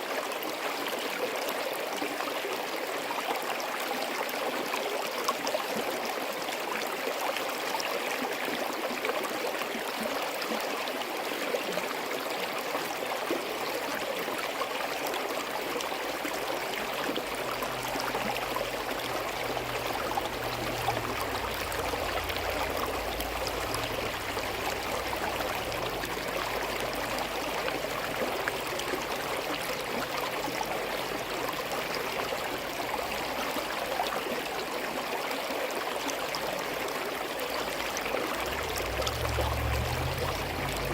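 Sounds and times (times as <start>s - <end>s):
stream gurgling: 0.0s - 40.9s
low rumble: 16.4s - 32.8s.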